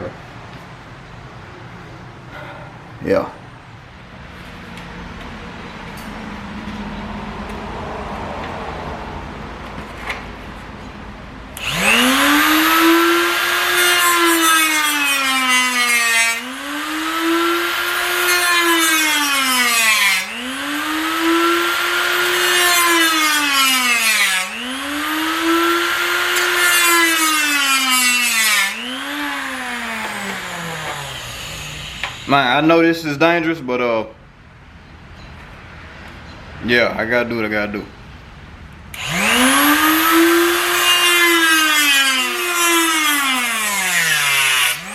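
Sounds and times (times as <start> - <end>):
power tool cutting: 11.6 - 32.6, 38.9 - 44.9.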